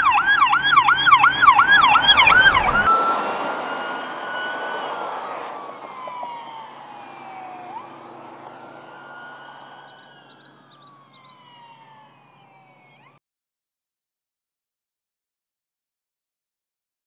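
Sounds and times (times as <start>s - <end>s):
police siren wailing: 0.0s - 13.2s.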